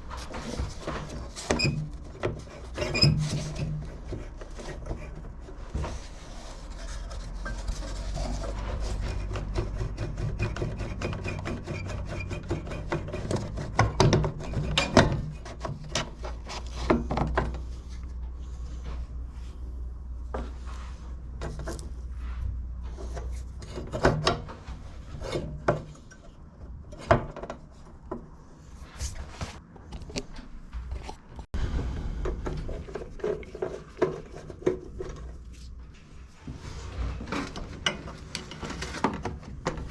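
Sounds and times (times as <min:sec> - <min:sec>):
hand tool rasping and scraping: 0:00.1 - 0:17.0.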